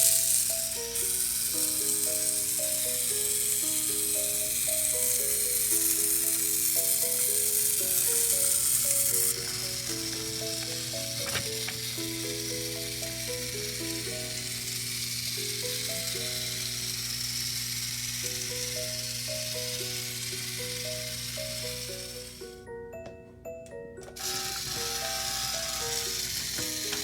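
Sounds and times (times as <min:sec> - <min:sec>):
simple single-note melody: 0:22.5 - 0:26.1.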